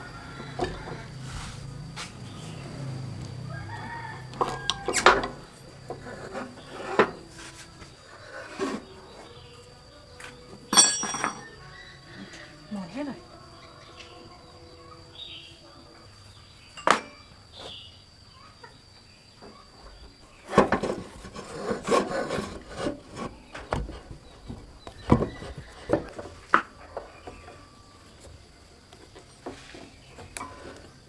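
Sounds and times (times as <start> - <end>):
knocks clicks and scraping: 10.7 - 11.5.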